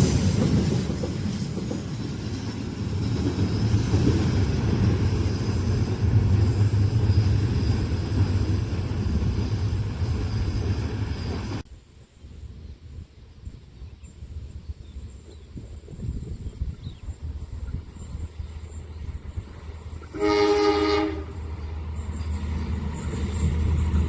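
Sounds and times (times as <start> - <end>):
train rumbling past: 0.0 - 24.0
high wheel squeal: 3.5 - 11.6, 18.0 - 24.0.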